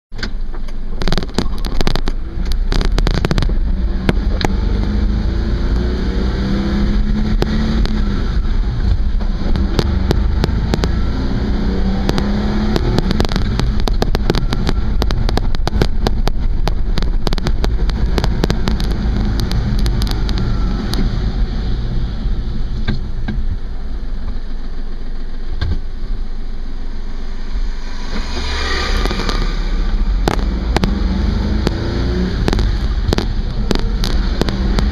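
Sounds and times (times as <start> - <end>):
sharp clicks and rattles: 0.1 - 5.0, 7.2 - 11.2, 11.8 - 21.2, 28.1 - 34.9
car engine and road rumble: 0.1 - 34.9.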